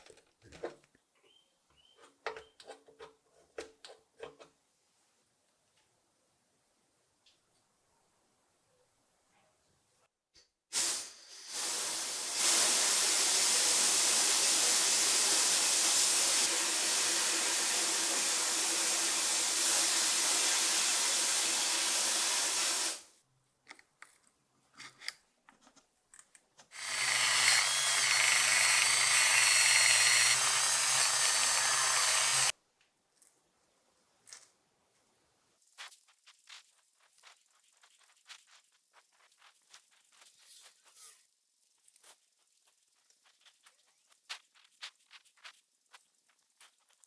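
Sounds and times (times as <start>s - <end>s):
small clicks and knocks: 23.6s - 26.7s
power tool running: 26.8s - 32.5s.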